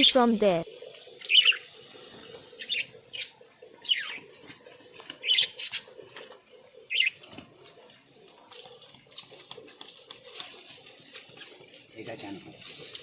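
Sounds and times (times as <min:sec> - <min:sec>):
budgerigars chirping: 0:01.2 - 0:01.7, 0:02.3 - 0:04.2, 0:05.2 - 0:05.8.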